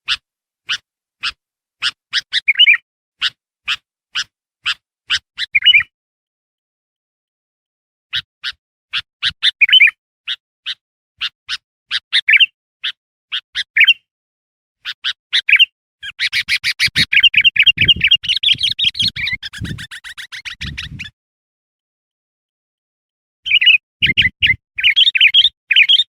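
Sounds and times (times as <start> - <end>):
bird chirping and warbling: 0.1 - 5.9, 8.1 - 14.1, 14.8 - 21.2, 23.5 - 26.0.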